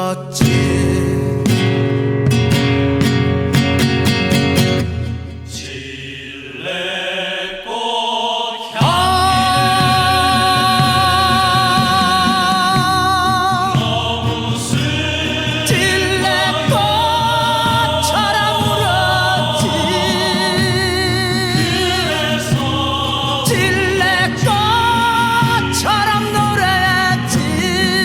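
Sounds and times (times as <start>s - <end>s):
man singing: 0.0s - 1.6s, 8.4s - 28.0s
instrumental accompaniment: 8.8s - 28.0s.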